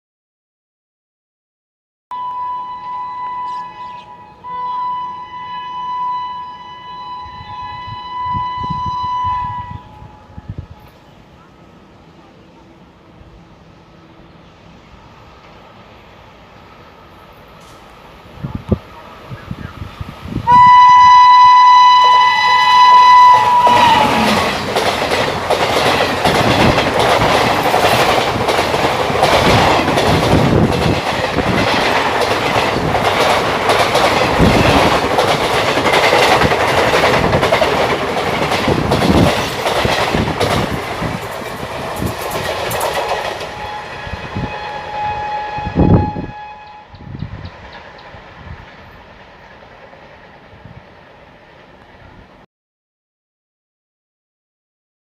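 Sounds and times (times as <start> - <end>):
locomotive horn: 2.1 - 10.8, 20.4 - 24.7, 43.4 - 47.2
fainter lower horn: 2.1 - 11.0, 20.5 - 24.6, 43.4 - 47.1
train wheels clattering on rails: 23.5 - 44.3.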